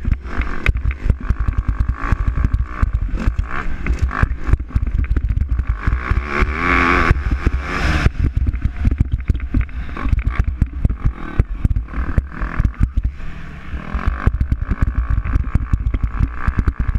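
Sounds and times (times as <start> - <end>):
low rumble: 0.0 - 16.9
motocross bike engine revving: 0.0 - 16.9
rapid irregular crackling: 0.0 - 16.9.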